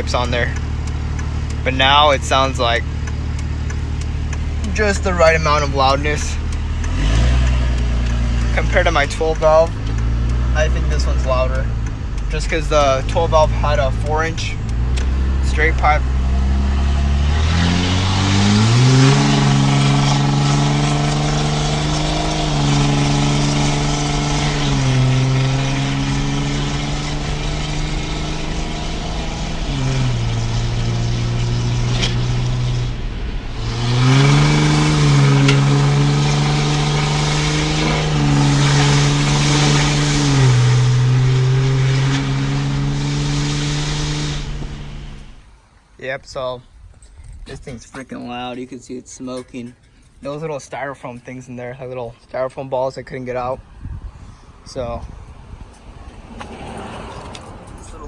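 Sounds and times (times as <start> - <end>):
diesel truck engine revving: 0.0 - 45.6.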